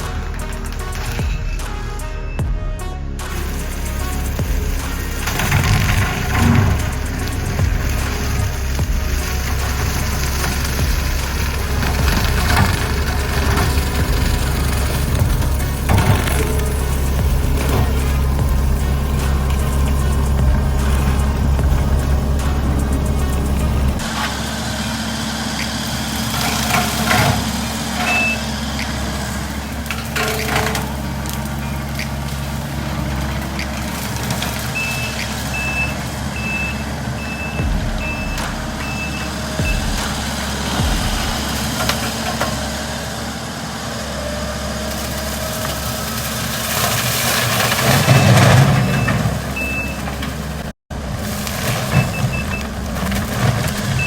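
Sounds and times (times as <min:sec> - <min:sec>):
skid steer engine running: 0:00.0 - 0:02.7, 0:03.3 - 0:54.0
reversing alarm beeping: 0:03.3 - 0:41.8, 0:47.6 - 0:50.4, 0:51.9 - 0:52.8.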